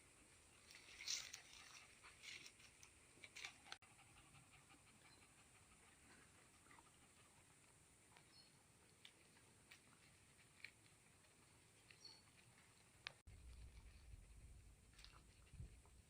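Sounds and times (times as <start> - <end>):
dog panting: 3.6 - 7.8.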